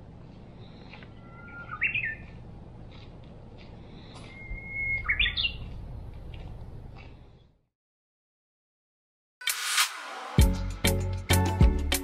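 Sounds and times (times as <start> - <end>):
songbird whistling song: 1.1 - 2.3, 4.2 - 5.6.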